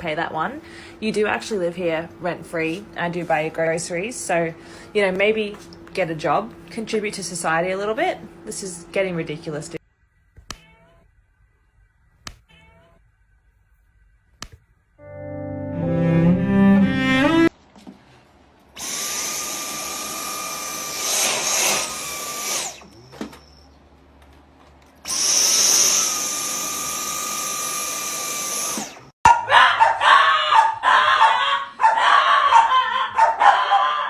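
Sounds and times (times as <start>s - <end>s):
small motor whirring: 18.8s - 23.1s, 25.0s - 29.1s.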